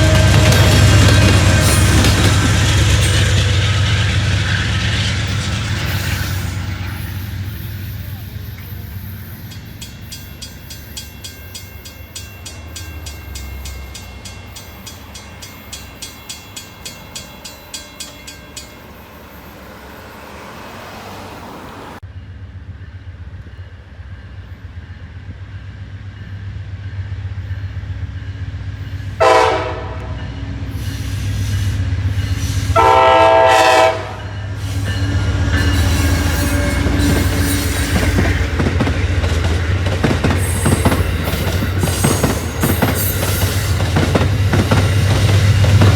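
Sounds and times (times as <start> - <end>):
locomotive horn blasts: 0.0 - 3.6, 29.2 - 30.3, 32.4 - 45.9
railroad crossing bell ringing: 0.0 - 21.4, 27.5 - 45.9
train rumble and wheel clatter: 0.0 - 45.9.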